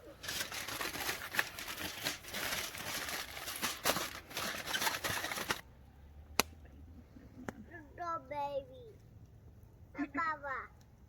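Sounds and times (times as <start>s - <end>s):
aluminium foil crinkling: 0.0s - 5.6s.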